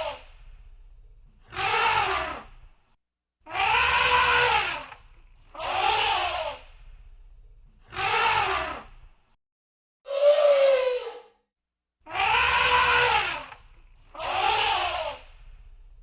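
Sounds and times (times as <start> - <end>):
elephant trumpeting: 3.5 - 4.9, 12.1 - 13.5.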